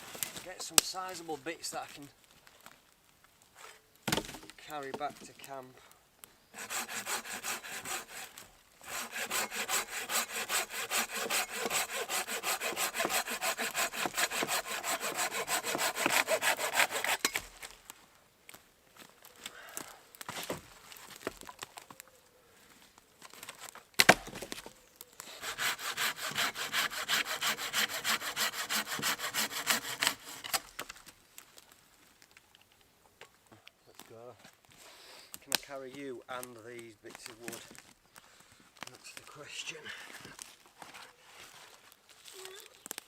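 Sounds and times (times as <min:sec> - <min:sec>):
hand saw cutting wood: 0:06.6 - 0:17.4, 0:25.2 - 0:30.8.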